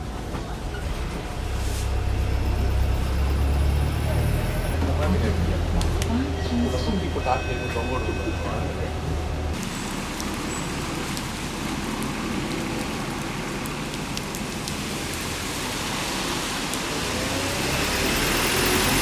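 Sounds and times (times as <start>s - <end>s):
city bus engine and road noise: 0.0s - 19.0s
rising engine whine: 0.8s - 12.0s.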